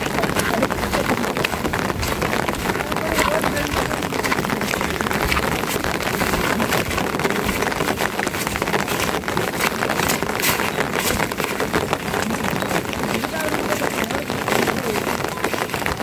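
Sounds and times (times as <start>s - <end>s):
rain drops pattering: 0.0s - 16.0s.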